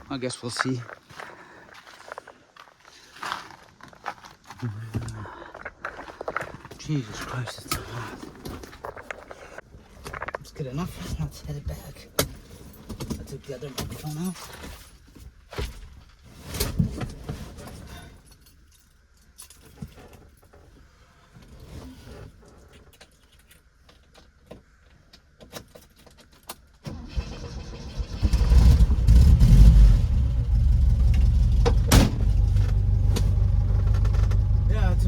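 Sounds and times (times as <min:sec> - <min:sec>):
car engine starting and idling: 0:26.8 - 0:35.0.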